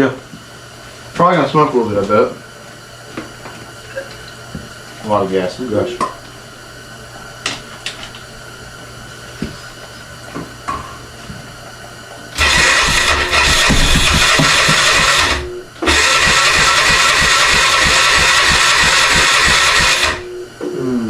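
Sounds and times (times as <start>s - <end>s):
electric starter cranking engine: 12.4s - 20.3s.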